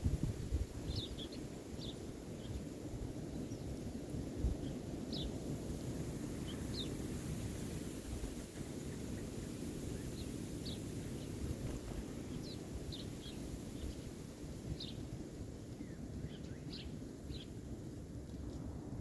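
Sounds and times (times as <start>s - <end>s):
small birds chirping: 0.7s - 2.7s, 4.5s - 5.4s, 6.2s - 7.1s, 7.8s - 17.7s.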